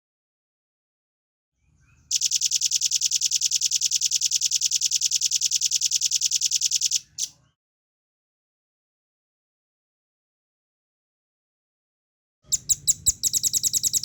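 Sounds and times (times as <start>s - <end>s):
bird singing a rapid trill: 1.8s - 7.4s, 12.5s - 14.0s.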